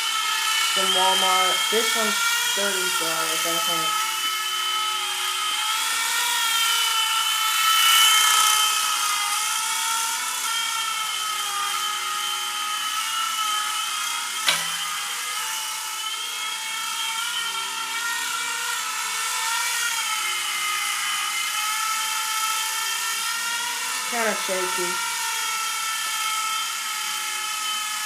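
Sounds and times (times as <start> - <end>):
toy helicopter rotors whining: 0.0 - 28.0
sharp click: 14.4 - 14.9.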